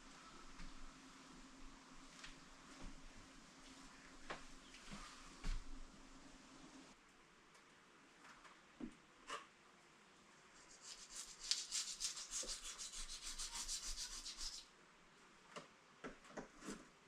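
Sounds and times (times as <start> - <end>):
rapid rubbing strokes: 10.6 - 14.7.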